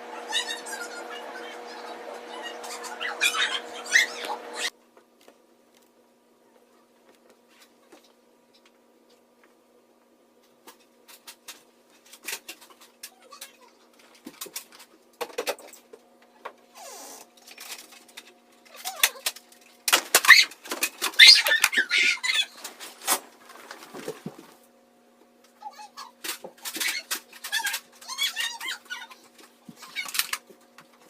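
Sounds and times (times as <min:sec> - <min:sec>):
loud clatter and rustling: 0:17.4 - 0:24.6.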